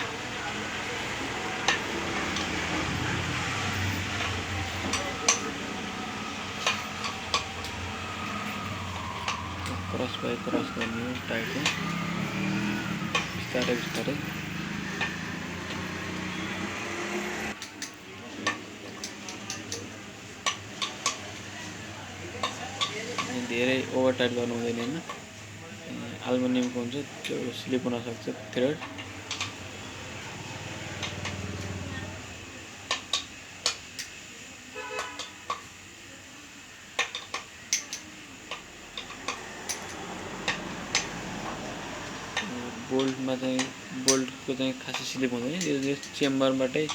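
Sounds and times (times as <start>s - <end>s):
wrench clinking against bolts: 37.0s - 41.1s.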